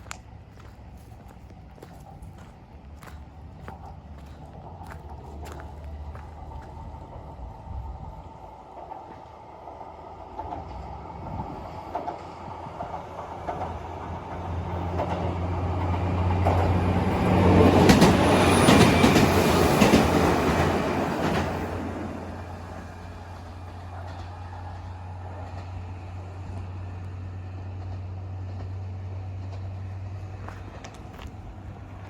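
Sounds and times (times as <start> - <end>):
train wheels clattering on bridge: 11.9 - 25.8.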